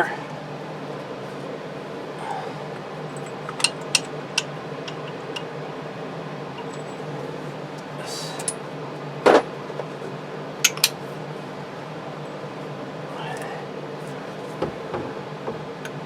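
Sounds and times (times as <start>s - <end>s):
steady low hum: 0.0s - 16.0s
metal hand tools clinking: 3.1s - 5.5s, 6.5s - 7.1s, 10.6s - 11.0s.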